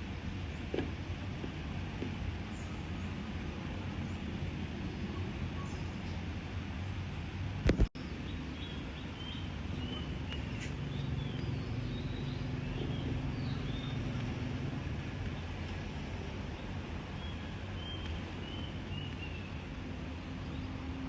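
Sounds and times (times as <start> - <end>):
small birds chirping: 8.0 - 21.0.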